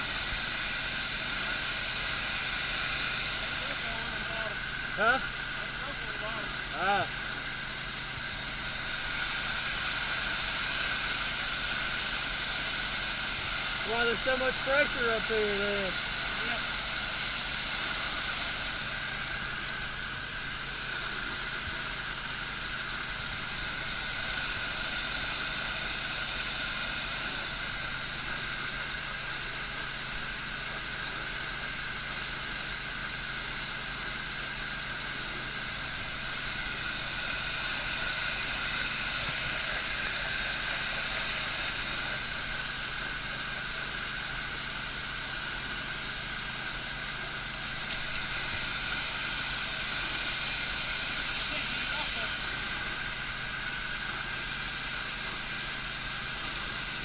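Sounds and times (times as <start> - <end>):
water hissing under pressure: 0.0 - 57.0.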